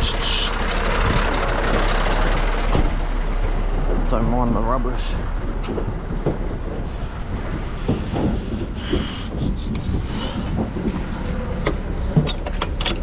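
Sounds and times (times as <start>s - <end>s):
truck engine idling: 0.0s - 13.0s
knocks: 5.6s - 9.1s.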